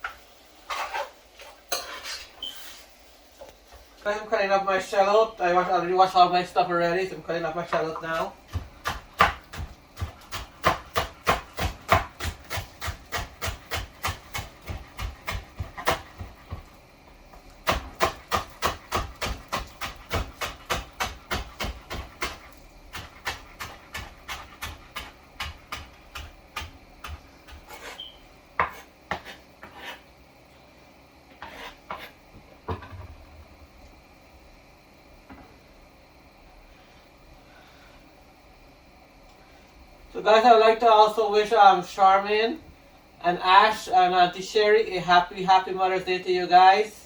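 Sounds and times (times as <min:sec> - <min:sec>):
knife chopping on cutting board: 0:07.7 - 0:16.6, 0:17.7 - 0:28.0, 0:28.6 - 0:30.0.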